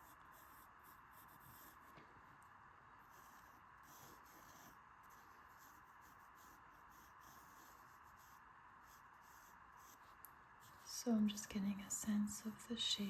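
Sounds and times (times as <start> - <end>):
pencil scratching on paper: 0.0 - 2.0, 3.0 - 11.0.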